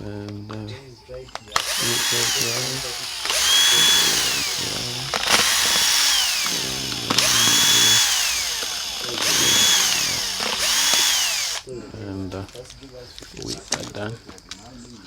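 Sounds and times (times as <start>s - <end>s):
electric screwdriver motor whine: 1.6s - 11.7s.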